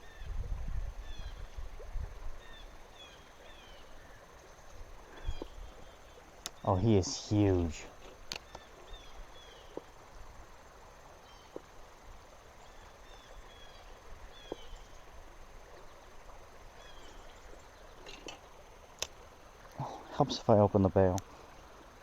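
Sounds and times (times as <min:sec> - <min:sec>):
bird chirping: 0:02.4 - 0:10.2, 0:12.6 - 0:15.1, 0:15.7 - 0:18.6.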